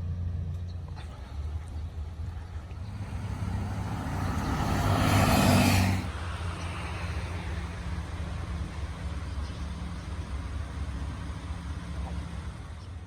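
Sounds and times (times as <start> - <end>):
road vehicle hum: 0.0 - 13.0
rushing noise: 2.8 - 6.1.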